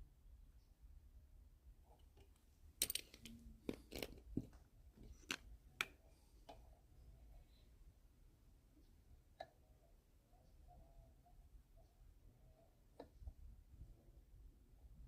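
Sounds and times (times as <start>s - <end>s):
small parts clicking: 2.0s - 5.9s.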